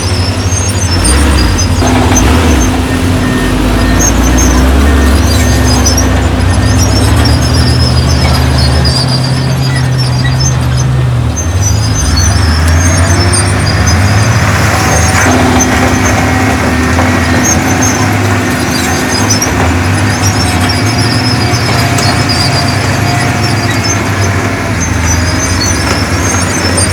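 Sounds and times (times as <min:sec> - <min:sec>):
heavy diesel engine running: 0:00.0 - 0:26.9
high squeaking: 0:00.0 - 0:26.9.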